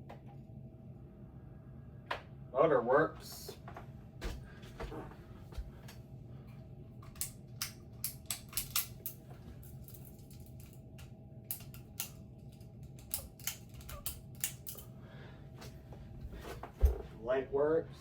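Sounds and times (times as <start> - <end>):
ceiling fan motor humming: 0.0 - 18.0.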